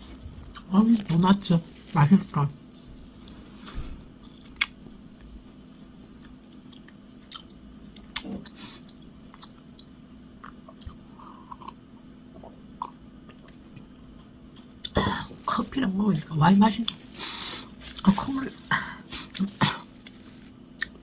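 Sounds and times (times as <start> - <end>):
person chewing with mouth clicks: 4.2 - 4.8, 6.2 - 15.0, 19.2 - 21.0.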